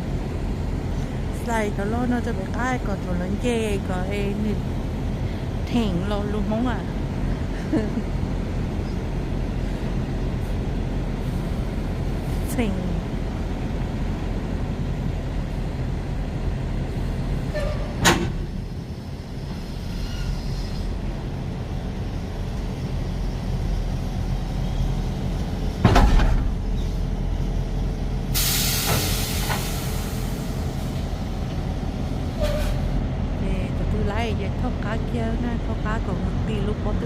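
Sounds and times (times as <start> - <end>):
air hiss burst: 28.3 - 30.6.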